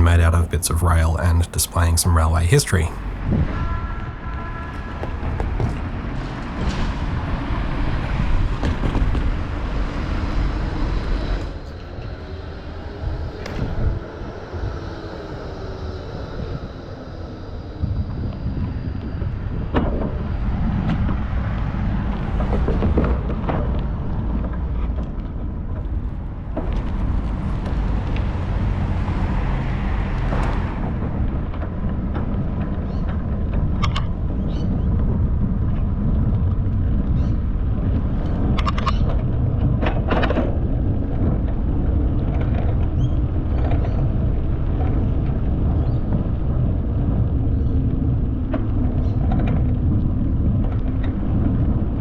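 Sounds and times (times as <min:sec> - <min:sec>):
wind rumble on microphone: 0:03.2 - 0:52.0
road traffic: 0:26.9 - 0:31.8.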